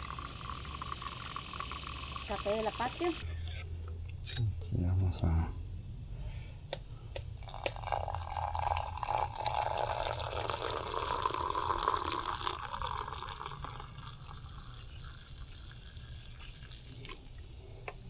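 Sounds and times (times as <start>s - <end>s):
coffee pouring into cup: 0.0s - 3.3s, 7.4s - 17.5s.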